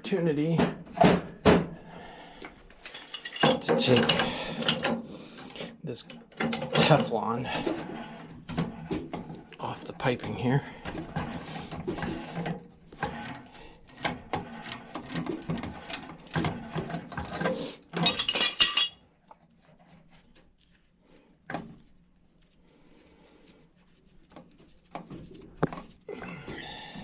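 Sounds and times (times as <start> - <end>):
metal tools clinking and scraping: 2.7 - 5.1, 5.9 - 8.3, 12.0 - 19.0.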